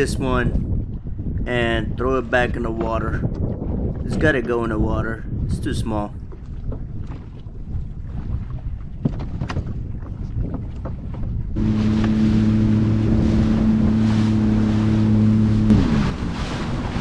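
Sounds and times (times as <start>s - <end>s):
water: 0.0s - 17.0s
wind: 0.0s - 17.0s
jet ski engine humming: 11.6s - 17.0s.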